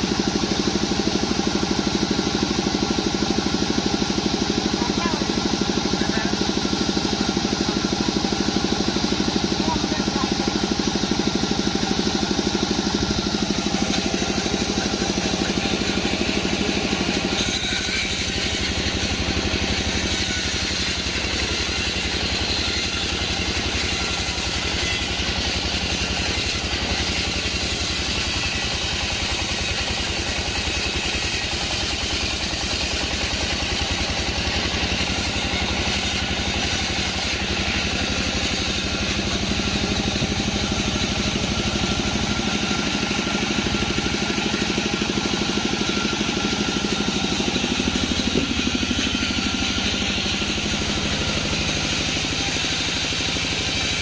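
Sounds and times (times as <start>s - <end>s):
band saw machinery humming: 0.0s - 54.0s.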